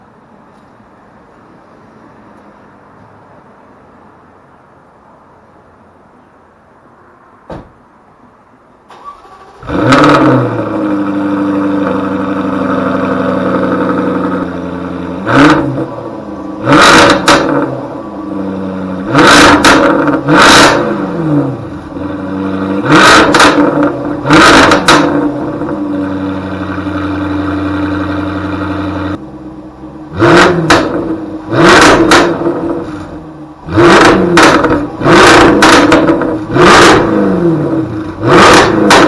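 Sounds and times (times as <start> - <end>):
car engine starting and revving: 8.9 - 39.0.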